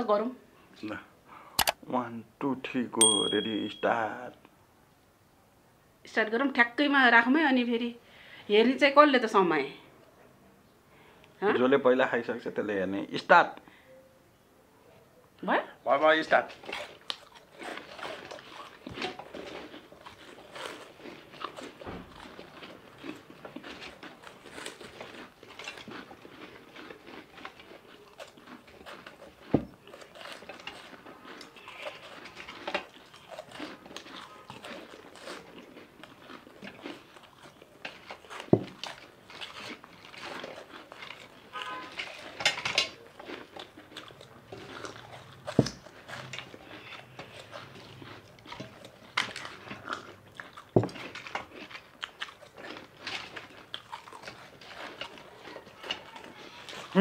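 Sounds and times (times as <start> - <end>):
people crunching and chewing: 0.8 - 1.8, 15.8 - 57.0.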